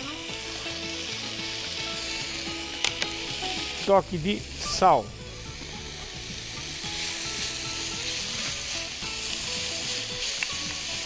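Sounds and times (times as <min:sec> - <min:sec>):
vegetables sizzling in oil: 0:00.0 - 0:11.0
spatula stirring in a pan: 0:05.4 - 0:11.0.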